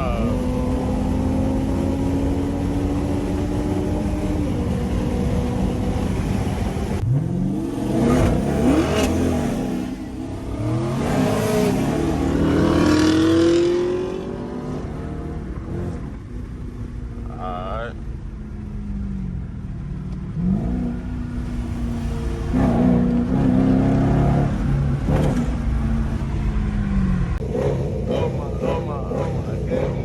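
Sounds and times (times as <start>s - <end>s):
car exhaust revving: 0.0s - 14.4s, 20.4s - 26.3s.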